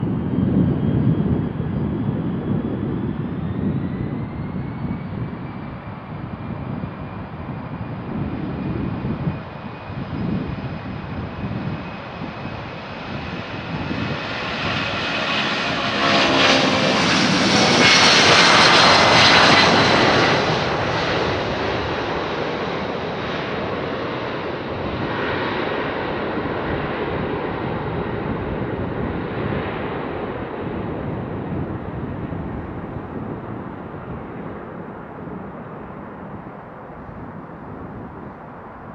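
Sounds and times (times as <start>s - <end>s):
jet taking off: 0.0s - 38.9s.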